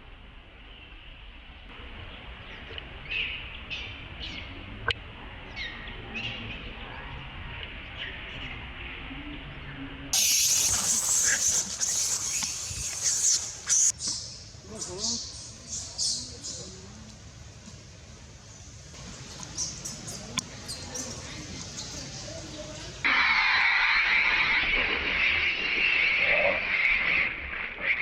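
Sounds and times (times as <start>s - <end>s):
loud harsh hissing noise: 10.2s - 14.1s.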